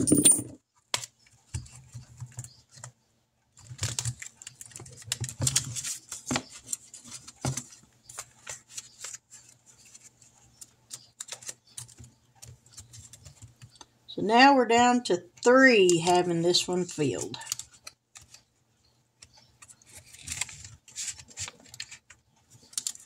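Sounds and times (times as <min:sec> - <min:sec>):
paper money being handled: 0:03.5 - 0:13.8, 0:15.6 - 0:18.6, 0:19.2 - 0:23.0.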